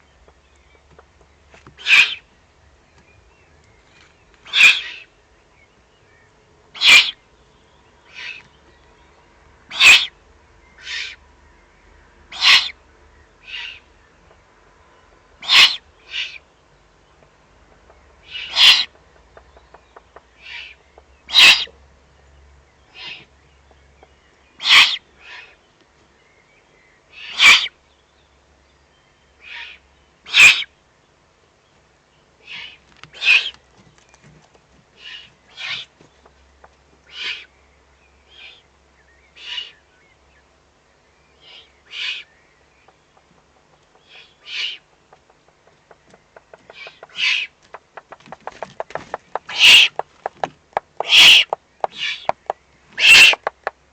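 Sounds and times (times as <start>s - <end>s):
owl chicks hissing begging calls: 1.8s - 2.3s, 4.4s - 5.2s, 6.7s - 7.3s, 8.0s - 8.5s, 9.7s - 11.2s, 12.3s - 12.8s, 13.4s - 13.9s, 15.4s - 16.5s, 18.2s - 19.0s, 20.4s - 21.8s, 22.9s - 23.3s, 24.6s - 25.6s, 27.0s - 27.8s, 29.4s - 30.8s, 32.4s - 33.6s, 35.0s - 36.0s, 37.0s - 37.6s, 38.3s - 38.7s, 39.3s - 39.9s, 41.4s - 42.4s, 43.9s - 45.0s, 46.1s - 48.7s, 49.3s - 50.1s, 51.0s - 53.6s.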